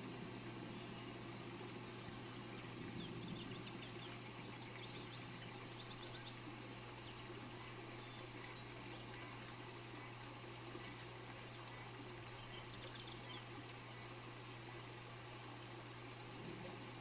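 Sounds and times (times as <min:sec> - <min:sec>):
rain hissing: 0:00.0 - 0:08.9, 0:13.5 - 0:17.0
faint bird chirps: 0:00.7 - 0:10.2, 0:10.8 - 0:14.1.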